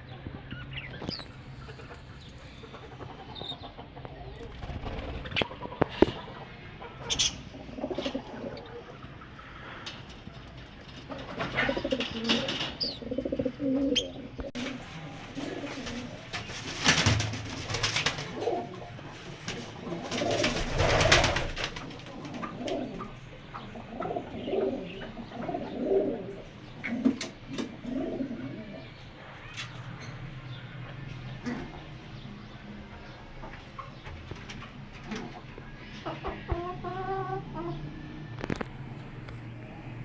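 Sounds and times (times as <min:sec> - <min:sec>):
pigeons cooing: 0:00.0 - 0:40.0
loud rustling bursts: 0:14.6 - 0:18.5, 0:19.2 - 0:22.0.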